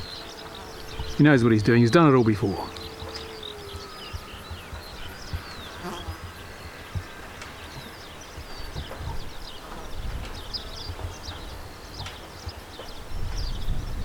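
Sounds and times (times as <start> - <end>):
birds chirping and whistling: 0.0 - 14.0
wind buffeting microphone: 0.0 - 14.0.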